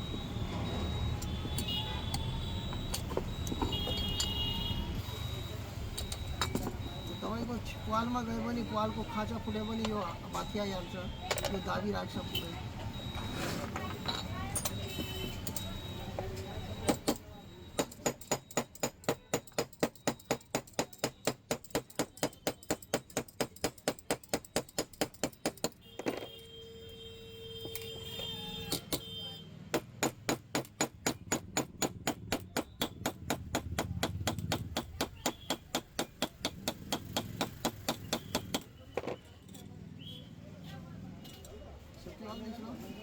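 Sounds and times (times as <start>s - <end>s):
hammer tapping on metal: 16.8s - 26.3s, 29.7s - 39.2s.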